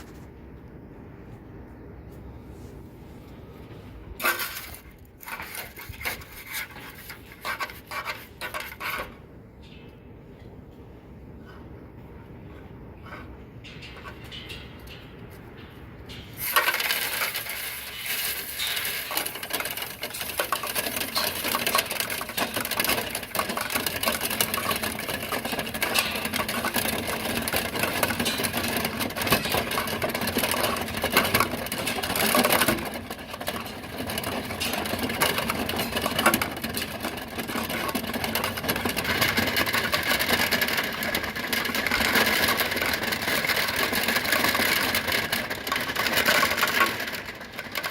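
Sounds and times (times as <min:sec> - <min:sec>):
brush rattling inside duct: 0:16.4 - 0:47.9.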